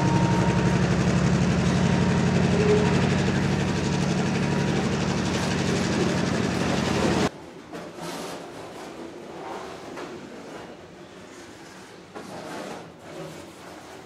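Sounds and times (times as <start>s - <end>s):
locomotive engine drone: 0.0s - 7.3s
freight cars rolling on rails: 0.0s - 14.0s.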